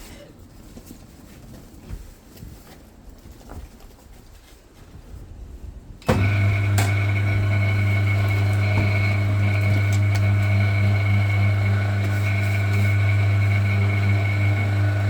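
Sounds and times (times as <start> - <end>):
testing machine motor humming: 6.1 - 15.0.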